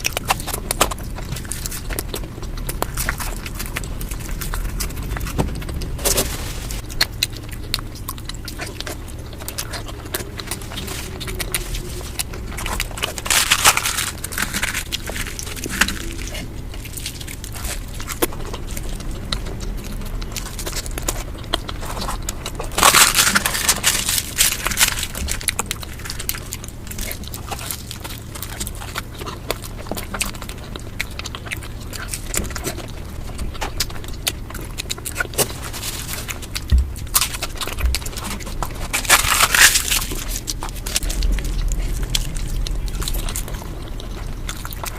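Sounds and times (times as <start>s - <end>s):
crunching and chewing food: 0.0s - 44.9s.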